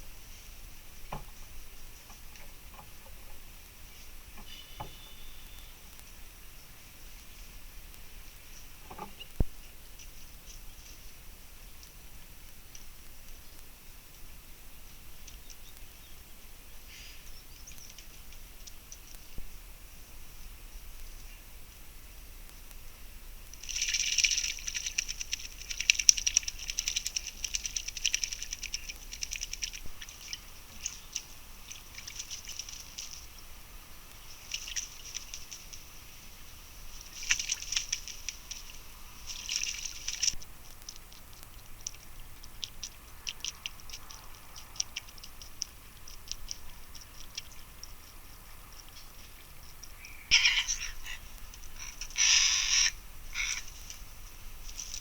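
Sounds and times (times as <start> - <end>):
small birds chattering: 3.9 - 6.8, 23.8 - 54.0.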